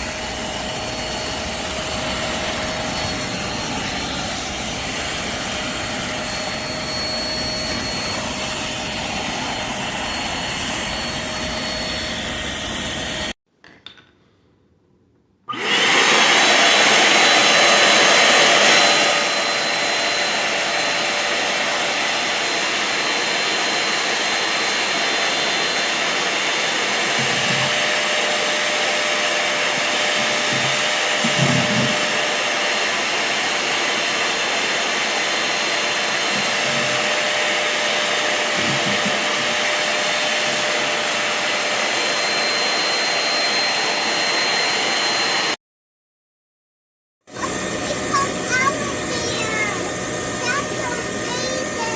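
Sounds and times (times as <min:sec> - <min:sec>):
suction motor rushing hiss: 0:00.0 - 0:13.4, 0:47.3 - 0:51.9.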